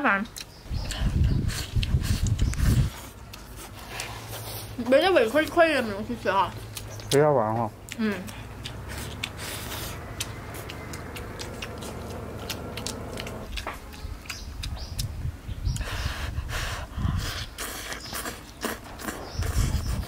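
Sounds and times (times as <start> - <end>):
person chewing food: 0.3 - 4.8, 6.5 - 20.0
lip smacks: 0.4 - 4.4, 6.6 - 16.1.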